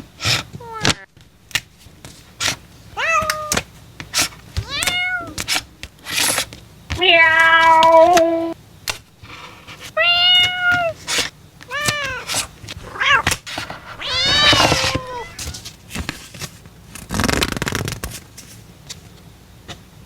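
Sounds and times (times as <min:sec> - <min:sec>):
cat meowing: 0:00.6 - 0:01.1, 0:02.9 - 0:03.6, 0:04.6 - 0:05.6, 0:07.0 - 0:08.6, 0:09.9 - 0:11.1, 0:11.7 - 0:15.7.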